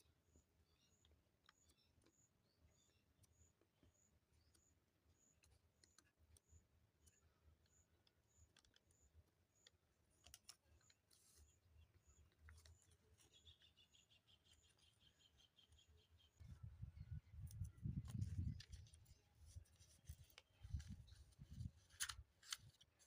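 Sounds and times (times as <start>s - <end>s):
faint high chirp: 0.0s - 21.7s
faint scattered clicks: 0.8s - 15.0s.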